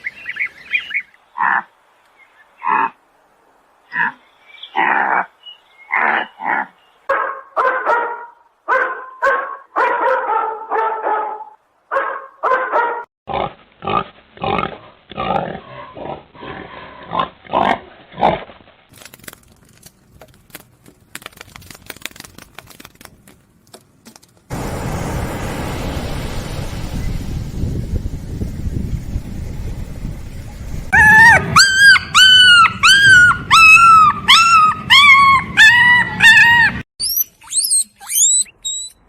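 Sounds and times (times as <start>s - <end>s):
animal barking: 1.4s - 1.7s, 5.9s - 13.1s, 31.0s - 36.8s
animal grunting calls: 5.9s - 6.8s.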